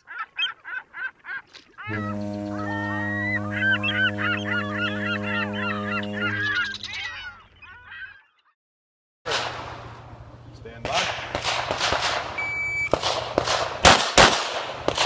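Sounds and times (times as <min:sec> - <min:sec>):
birds calling: 0:00.0 - 0:08.4
steady low tone: 0:01.9 - 0:06.9.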